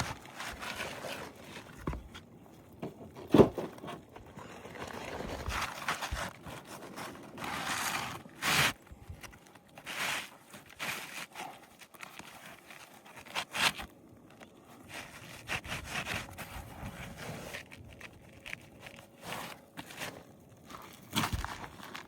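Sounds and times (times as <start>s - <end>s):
roof shingles scraped and ripped: 0.0s - 2.1s, 2.8s - 13.9s.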